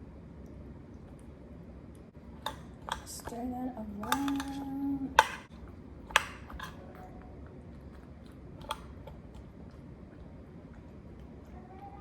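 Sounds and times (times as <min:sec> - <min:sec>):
utensil clinking against a dish: 0:02.4 - 0:07.3.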